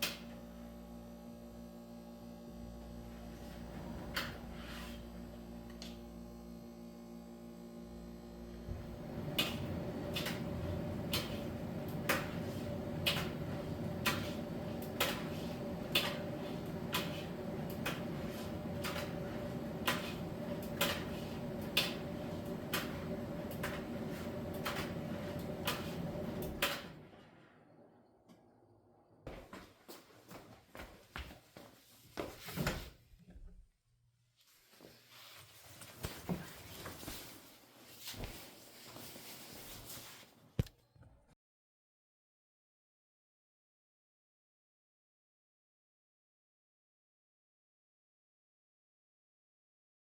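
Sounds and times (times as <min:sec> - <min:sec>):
tumble dryer humming: 0:00.0 - 0:27.4.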